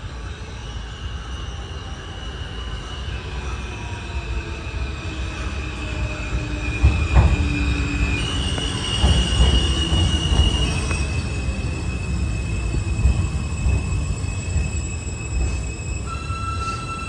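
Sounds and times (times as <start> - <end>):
subway train rumble: 0.0 - 17.0
high wheel squeal: 4.9 - 17.0.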